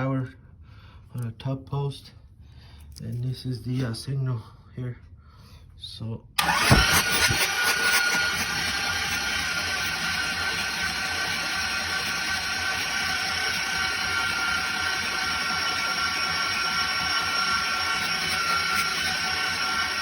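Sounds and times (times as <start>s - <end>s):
starter motor cranking engine: 6.4s - 20.0s.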